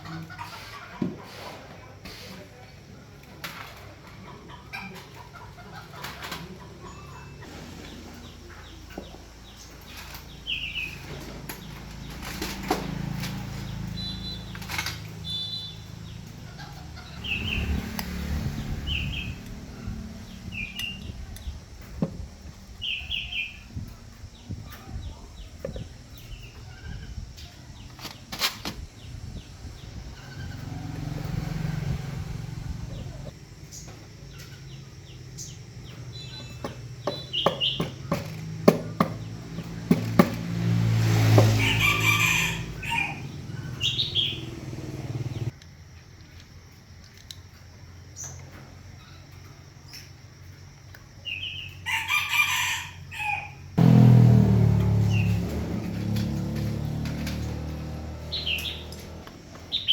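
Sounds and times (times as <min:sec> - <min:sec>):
rooster crowing: 0:41.4 - 0:45.5, 0:51.8 - 0:55.3.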